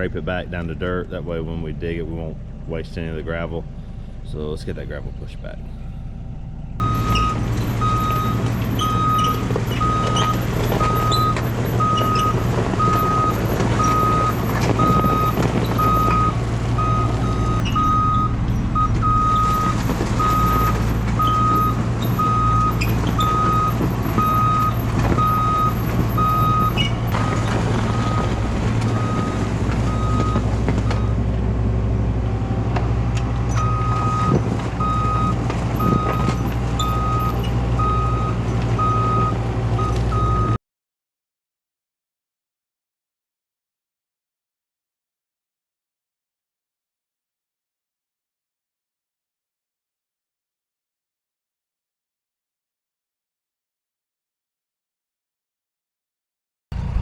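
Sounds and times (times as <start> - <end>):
diesel engine running: 0.0 - 40.6, 56.7 - 57.0
reversing alarm beeping: 6.8 - 31.2, 33.5 - 40.6.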